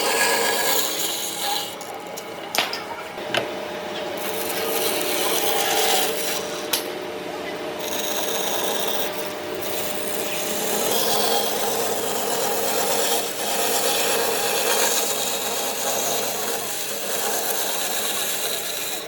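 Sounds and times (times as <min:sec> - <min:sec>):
power tool grinding wood: 0:00.0 - 0:02.4, 0:03.2 - 0:06.9, 0:07.8 - 0:19.0.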